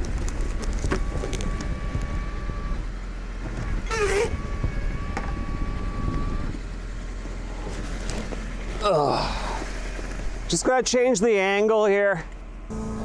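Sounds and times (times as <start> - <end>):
winch whine: 0.0 - 10.7, 12.7 - 13.0
truck engine running: 0.0 - 13.0
wavering squeal: 3.6 - 6.6.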